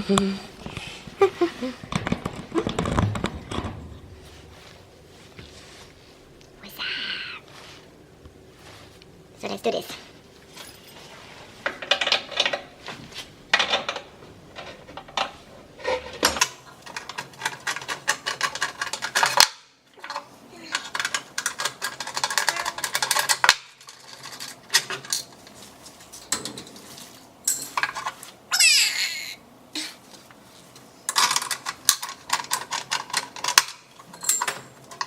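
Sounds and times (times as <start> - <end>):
hard objects clinking and rattling: 10.5 - 12.8, 13.5 - 28.3, 31.1 - 35.0.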